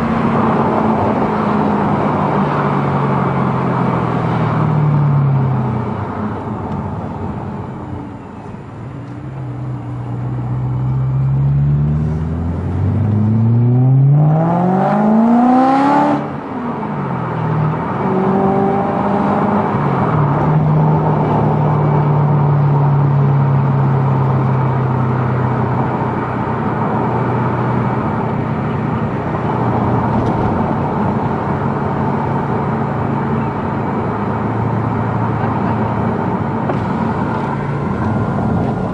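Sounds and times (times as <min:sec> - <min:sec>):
car engine accelerating: 0:09.0 - 0:38.9.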